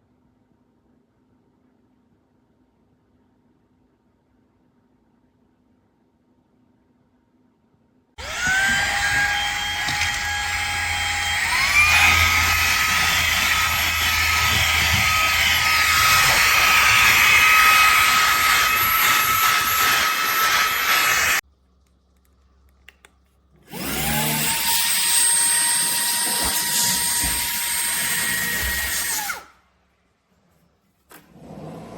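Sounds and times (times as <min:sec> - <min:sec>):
handheld vacuum whining: 0:08.2 - 0:21.4, 0:23.7 - 0:29.5.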